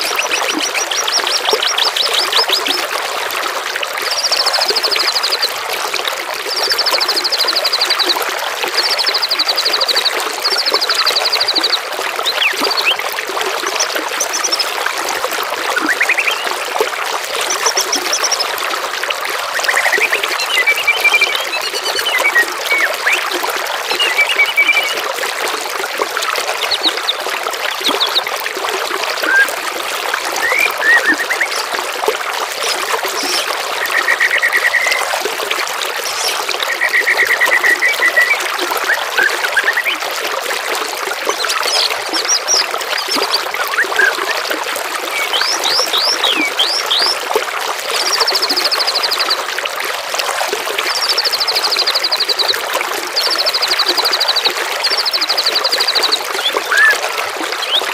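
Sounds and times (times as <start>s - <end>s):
songbirds trilling and whistling: 0.0s - 2.9s, 8.8s - 13.0s, 13.6s - 14.8s, 15.6s - 16.7s, 17.4s - 18.6s, 19.5s - 25.0s, 26.4s - 28.3s, 29.0s - 29.6s, 30.3s - 31.8s, 32.6s - 35.2s, 36.0s - 40.0s, 41.2s - 47.2s, 53.2s - 57.9s
water trickling: 0.0s - 57.9s.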